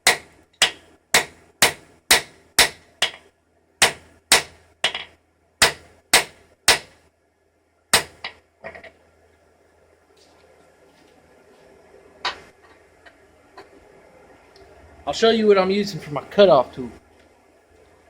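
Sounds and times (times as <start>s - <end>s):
hammer striking metal on anvil: 0.0s - 3.2s, 3.8s - 7.0s.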